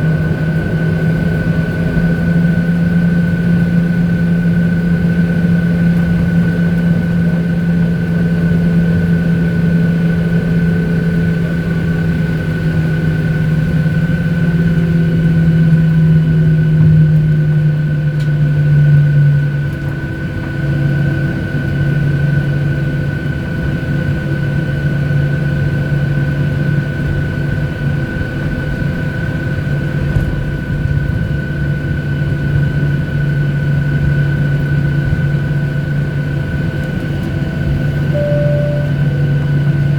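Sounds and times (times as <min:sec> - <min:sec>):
jet aircraft cabin noise: 0:00.0 - 0:39.9.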